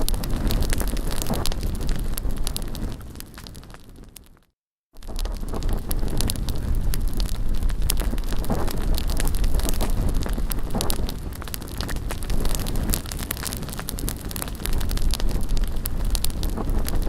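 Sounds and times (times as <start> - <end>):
wind rumble on microphone: 0.0 - 4.4, 5.0 - 17.0
bonfire crackling: 0.0 - 17.0.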